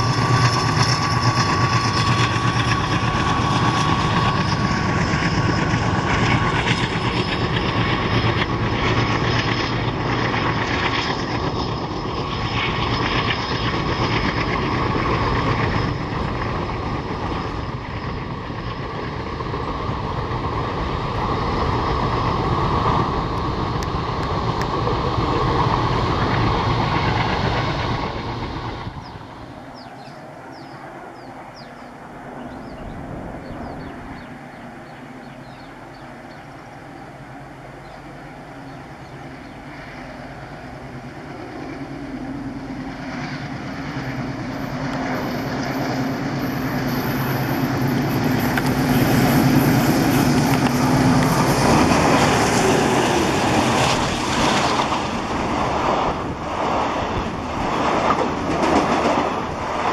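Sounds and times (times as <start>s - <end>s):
bird chirps: 29.8s - 36.5s
train wheels clattering over rails: 43.3s - 59.9s.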